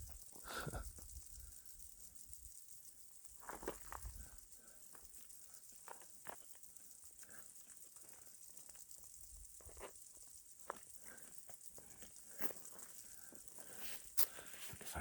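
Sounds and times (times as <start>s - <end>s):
insects snapping and clicking: 0.0s - 15.0s.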